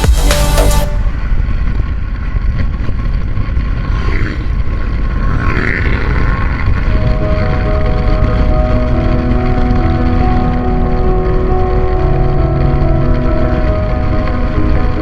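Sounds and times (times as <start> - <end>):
background music: 0.0 - 1.6, 7.0 - 15.0
scooter road noise: 0.0 - 15.0
wind on camera: 1.0 - 15.0.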